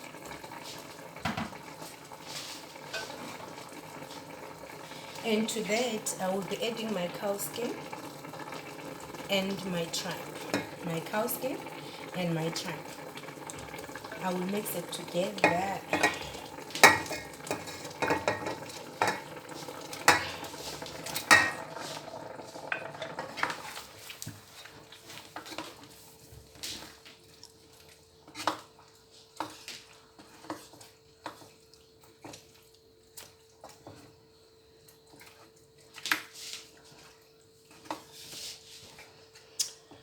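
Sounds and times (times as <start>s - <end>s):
spoon clinking and scraping pot: 2.9s - 3.4s, 10.4s - 10.8s, 15.2s - 19.3s, 20.0s - 21.9s.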